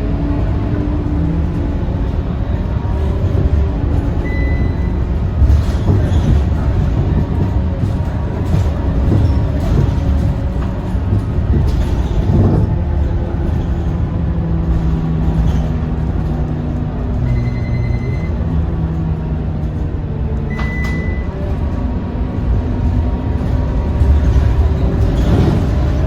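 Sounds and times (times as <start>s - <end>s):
bus diesel engine running: 0.0s - 26.0s
short high beeps: 4.3s - 5.0s, 20.5s - 21.3s.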